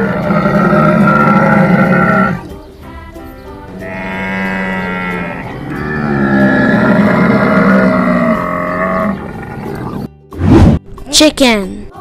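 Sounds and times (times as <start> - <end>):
camel calling: 0.0 - 2.5, 3.8 - 10.1.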